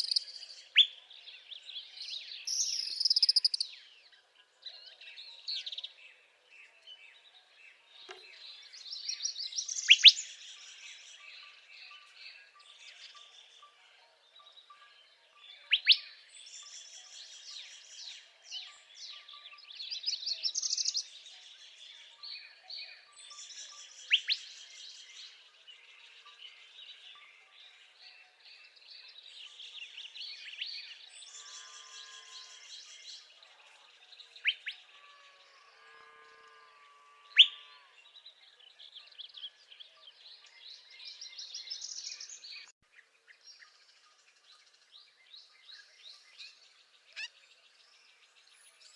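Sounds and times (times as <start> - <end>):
chorus of songbirds: 0.0 - 48.9
bird singing buzzy trills: 2.2 - 3.8, 28.0 - 33.4.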